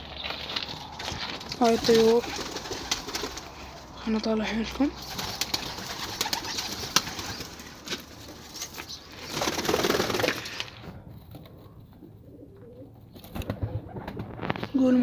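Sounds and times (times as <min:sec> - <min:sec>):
pigeons cooing: 0:00.2 - 0:10.8, 0:11.4 - 0:14.8
rush of wingbeats: 0:01.4 - 0:04.0, 0:05.0 - 0:10.7.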